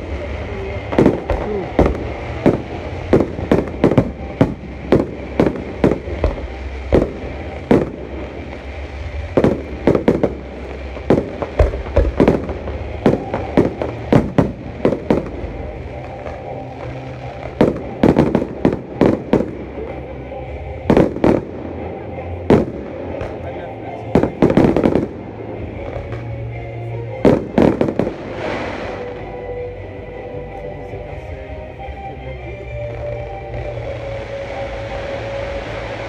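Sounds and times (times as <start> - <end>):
fireworks sharp bangs: 0.0 - 26.5, 27.1 - 29.6
steady low rumble: 0.0 - 36.0.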